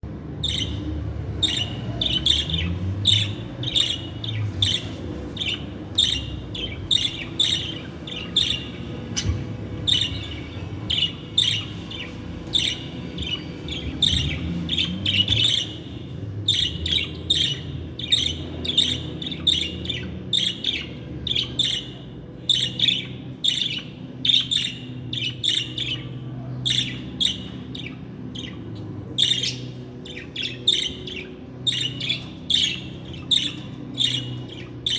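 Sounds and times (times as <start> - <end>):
budgerigar chirping: 0.4 - 34.9.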